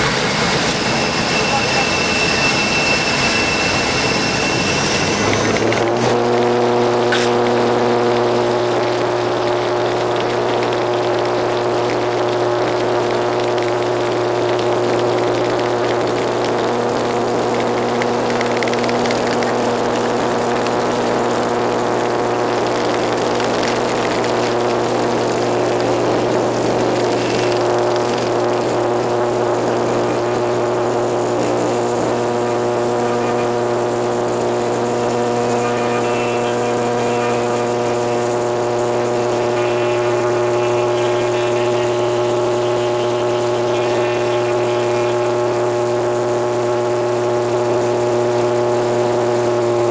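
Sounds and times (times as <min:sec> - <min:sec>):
rushing noise: 0:00.0 - 0:06.3
turboprop engines droning: 0:00.0 - 0:49.9.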